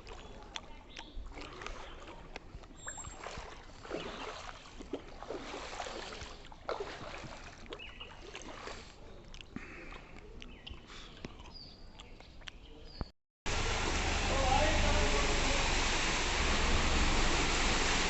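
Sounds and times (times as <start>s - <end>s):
rainwater sloshing and trickling: 0.0s - 11.6s, 13.5s - 18.0s
small splashes and clicks: 0.0s - 13.1s.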